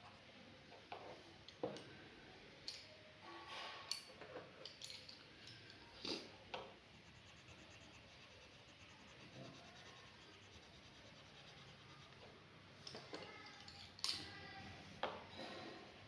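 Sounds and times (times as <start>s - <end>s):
drawing tool scratching paper: 6.8s - 12.2s.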